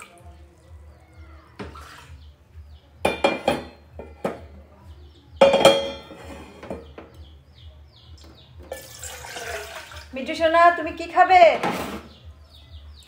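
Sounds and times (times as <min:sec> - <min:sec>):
metal pans and utensils clattering: 0:03.0 - 0:04.4, 0:05.4 - 0:07.2, 0:08.6 - 0:10.1, 0:11.5 - 0:12.2.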